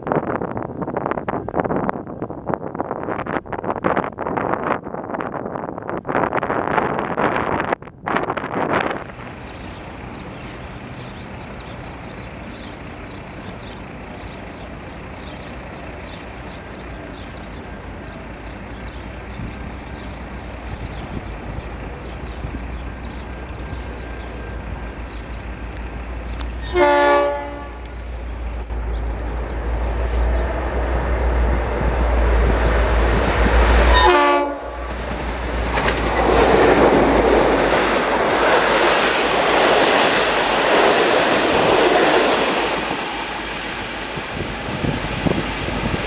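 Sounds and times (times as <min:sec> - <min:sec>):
locomotive engine rumble: 0:08.7 - 0:46.0
carriages rolling by: 0:09.1 - 0:26.7
train horn blasts: 0:26.6 - 0:28.0, 0:33.9 - 0:35.0.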